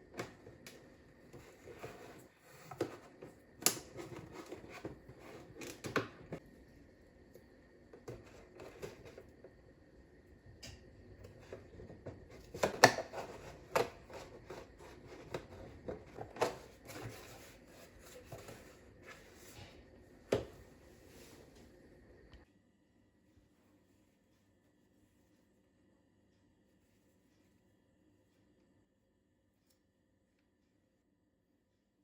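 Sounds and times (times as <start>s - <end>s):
objects being handled: 11.2s - 20.6s.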